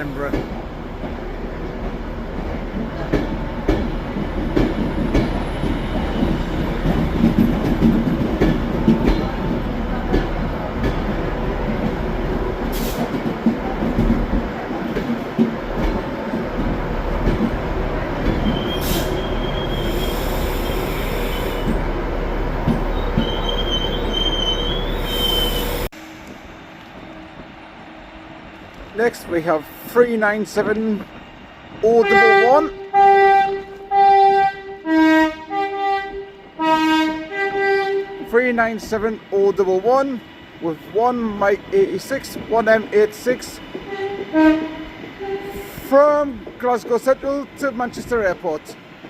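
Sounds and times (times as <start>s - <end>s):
train wheels rumbling on rail: 0.0s - 49.0s
wheel squeal: 18.3s - 21.8s, 22.9s - 25.9s.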